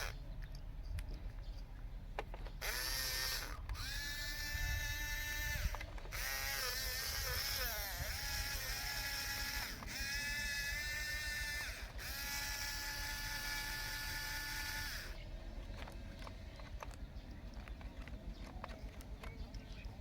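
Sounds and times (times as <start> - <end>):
small electric motors whining: 0.0 - 0.2, 2.5 - 15.2.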